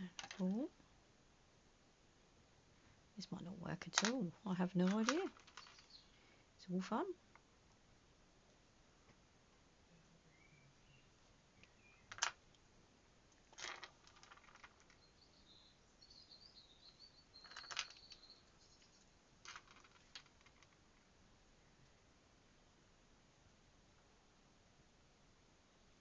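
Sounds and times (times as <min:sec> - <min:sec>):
beads clicking together: 0:04.9 - 0:06.0
faint high chirping: 0:05.2 - 0:06.8, 0:09.9 - 0:12.2, 0:14.7 - 0:19.3.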